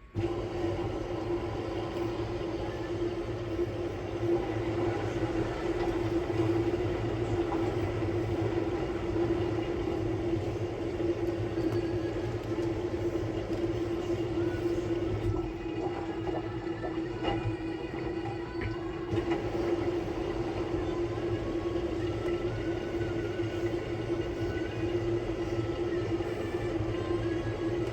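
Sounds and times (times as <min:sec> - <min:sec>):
washing machine motor hum: 0:00.0 - 0:27.9.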